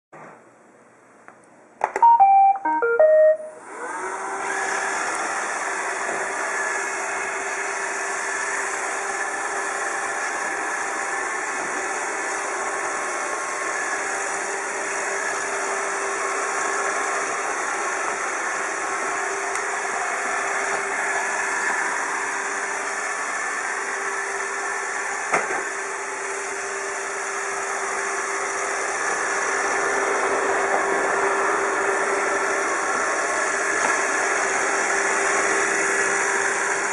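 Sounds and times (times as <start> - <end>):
robot vacuum start-up beeps: 2.0 - 3.9
vacuum motor and brushes running: 3.6 - 36.9.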